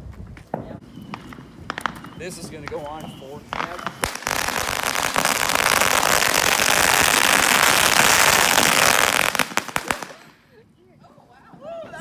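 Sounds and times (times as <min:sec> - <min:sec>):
firework crackling hiss: 0:01.2 - 0:10.4.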